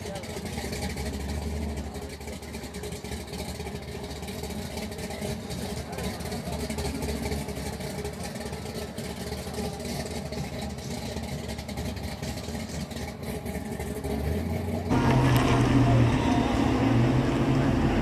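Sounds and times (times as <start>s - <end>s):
vehicle engine idling: 0.0s - 18.0s
deep steady hum: 14.9s - 18.0s.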